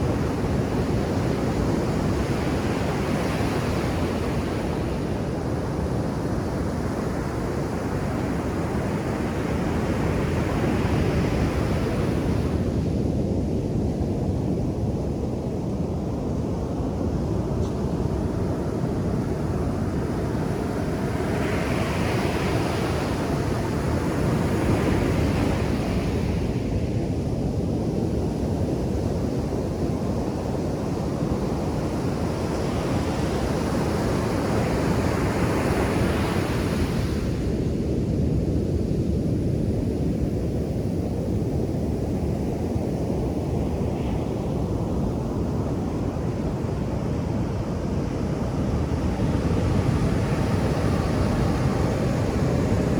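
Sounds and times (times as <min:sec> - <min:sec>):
waves rumbling: 0:42.8 - 0:52.9.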